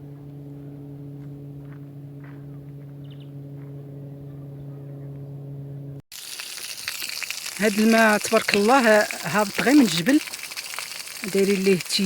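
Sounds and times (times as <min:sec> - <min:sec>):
steady low hum: 0:00.0 - 0:06.0.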